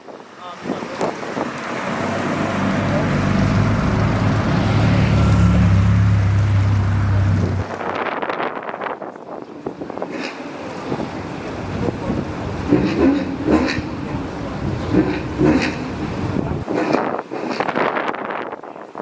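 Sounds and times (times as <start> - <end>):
wind noise on microphone: 0.0 - 19.0
car engine running: 2.4 - 7.8.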